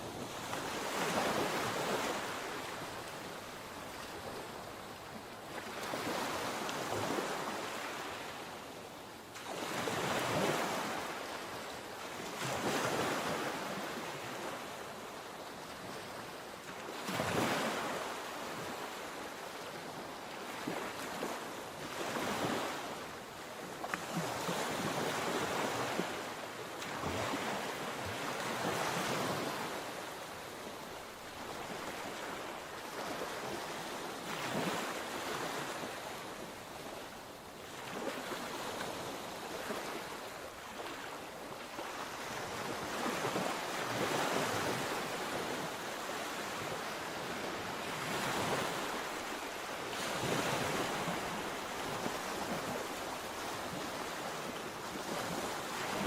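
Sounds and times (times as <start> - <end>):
sea waves breaking: 30.6 - 56.0.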